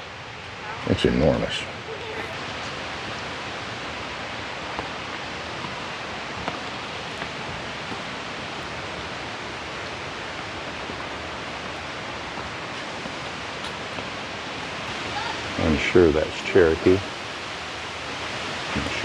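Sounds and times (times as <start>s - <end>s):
creek and waterfalls rushing: 0.0s - 19.0s.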